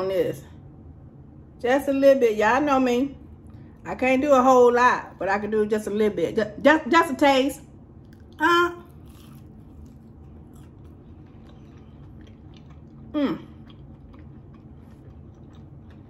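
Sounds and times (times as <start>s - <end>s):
chewing soft food: 8.0s - 16.0s.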